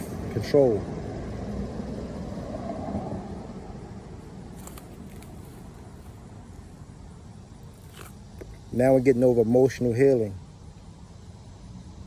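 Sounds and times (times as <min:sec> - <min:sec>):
vehicle passing: 0:00.0 - 0:06.0.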